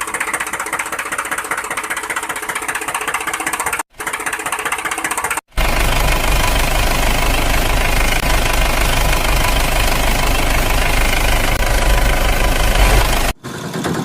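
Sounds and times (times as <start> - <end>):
engine running steadily: 5.5 - 14.0.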